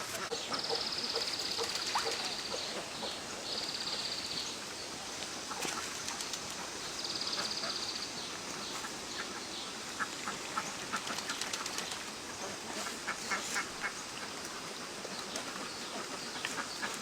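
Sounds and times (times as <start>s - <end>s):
ducks quacking: 12.3s - 14.8s.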